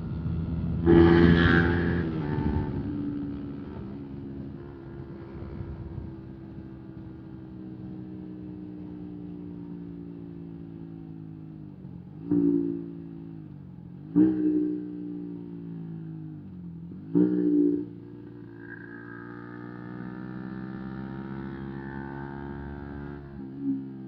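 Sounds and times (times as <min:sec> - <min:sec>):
motorcycle throttle blips: 0:00.0 - 0:11.1, 0:12.2 - 0:13.5
motorcycle engine running: 0:00.0 - 0:24.0.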